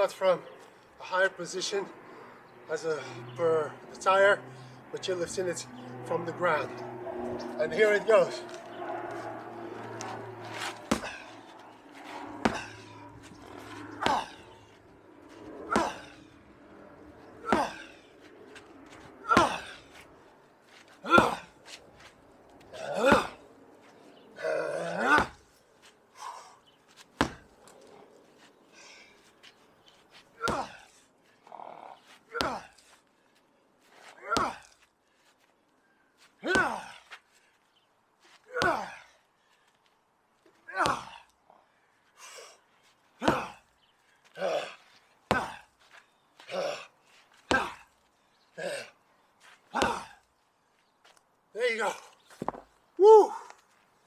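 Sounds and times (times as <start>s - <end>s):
sledgehammer striking rubber mat: 10.6s - 11.3s, 12.4s - 12.9s, 14.0s - 14.4s, 15.7s - 16.2s, 17.4s - 17.9s, 19.3s - 19.8s, 21.1s - 21.5s, 22.8s - 23.4s, 25.0s - 25.4s, 27.2s - 27.5s, 43.2s - 43.6s, 45.3s - 45.7s, 47.5s - 47.8s, 49.8s - 50.2s
sledgehammer slamming on rubber mat: 10.9s - 11.2s, 27.2s - 27.4s, 45.3s - 45.6s
man grunting: 14.0s - 14.6s, 15.7s - 16.2s, 17.4s - 18.0s, 19.2s - 19.8s, 21.0s - 21.6s, 22.7s - 23.4s, 24.4s - 25.4s, 30.4s - 30.9s, 32.3s - 32.8s, 34.2s - 34.7s, 36.4s - 37.0s, 38.5s - 39.1s, 40.6s - 41.3s, 44.4s - 45.7s, 46.5s - 46.9s, 47.5s - 47.9s, 49.7s - 50.2s, 53.0s - 53.5s.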